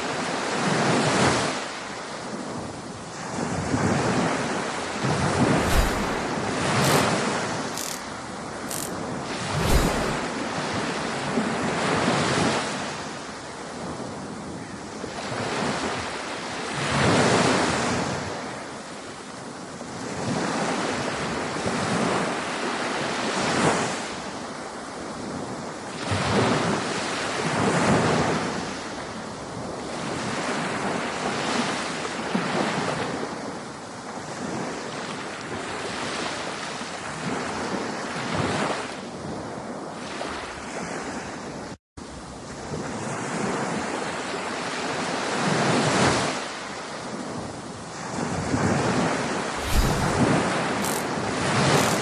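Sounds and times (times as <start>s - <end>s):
waves breaking: 3.9s - 8.1s, 8.7s - 13.0s, 49.6s - 52.0s
wind buffeting microphone: 49.6s - 52.0s.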